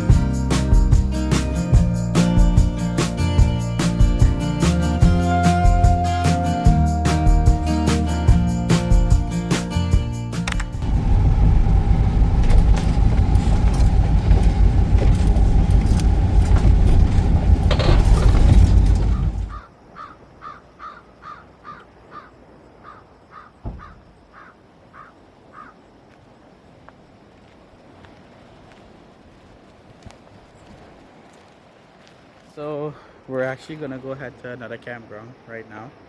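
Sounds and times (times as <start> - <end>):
loud rushing and rumbling noise: 10.8 - 19.6
bird calling: 19.0 - 25.8
dull thump: 23.6 - 24.1.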